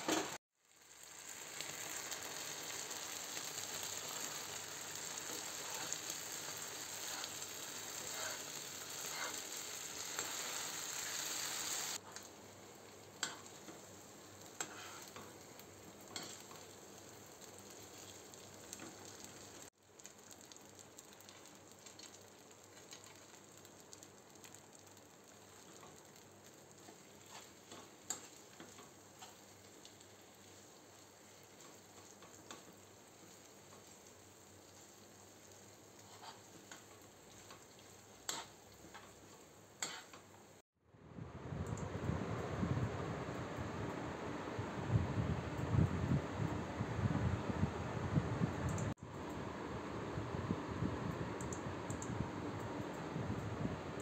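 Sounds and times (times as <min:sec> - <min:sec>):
potato sizzling in a pan: 0:00.0 - 0:40.6.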